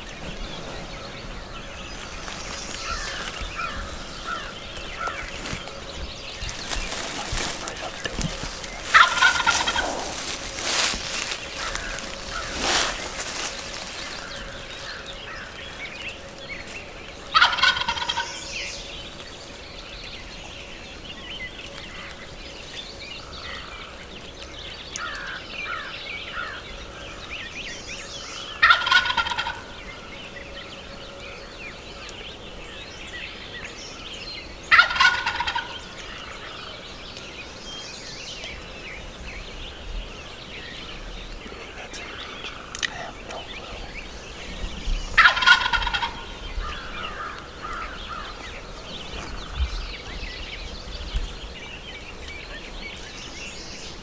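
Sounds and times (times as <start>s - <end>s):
small bird calls: 0.0s - 54.0s
turkey gobbling: 6.4s - 15.0s, 17.3s - 18.4s, 28.6s - 29.7s, 34.7s - 35.8s, 45.2s - 48.5s.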